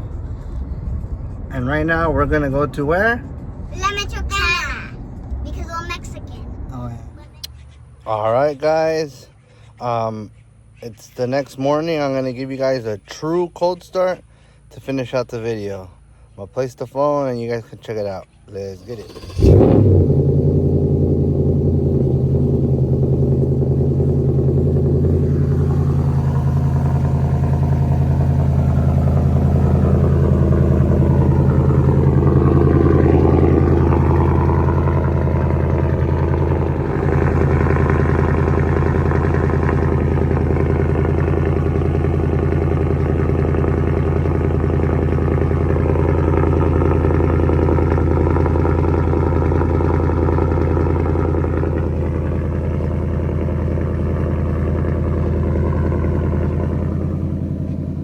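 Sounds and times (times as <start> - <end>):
vee eight engine idling: 18.5 - 58.0.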